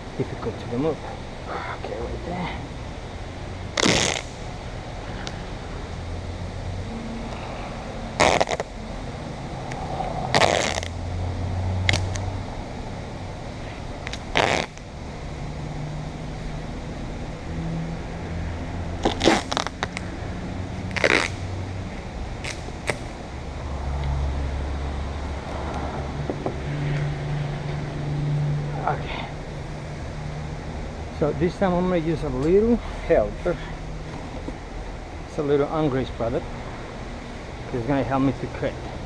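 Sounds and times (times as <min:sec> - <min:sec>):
low steady hum: 0:00.0 - 0:39.0
adhesive tape ripping: 0:03.7 - 0:04.4, 0:08.2 - 0:08.7, 0:10.3 - 0:11.0, 0:11.8 - 0:12.3, 0:14.0 - 0:14.9, 0:19.0 - 0:20.1, 0:20.8 - 0:21.5, 0:22.4 - 0:23.2.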